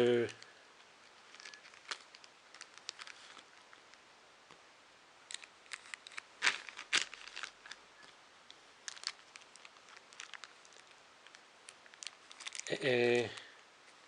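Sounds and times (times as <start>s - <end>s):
plastic packaging crinkling: 0.2s - 4.0s, 5.3s - 14.0s.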